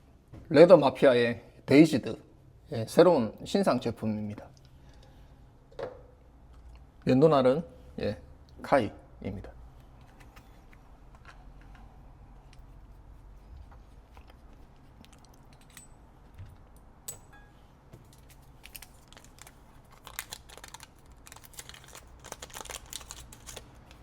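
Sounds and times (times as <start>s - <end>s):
paper wrapper crinkling and tearing: 18.1s - 24.0s.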